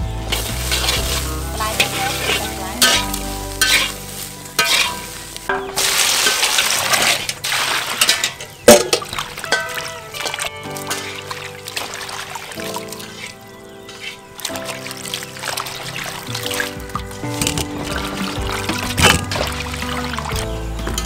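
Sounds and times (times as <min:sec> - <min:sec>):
food sizzling in a pan: 0:00.3 - 0:08.2.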